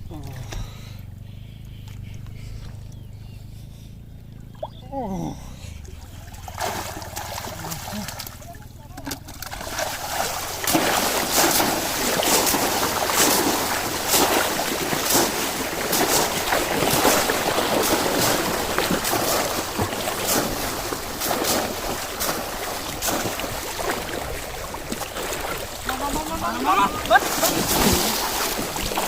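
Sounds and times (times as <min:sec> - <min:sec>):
water splashing and churning: 0:00.0 - 0:29.0
sharp splashes: 0:04.5 - 0:29.0.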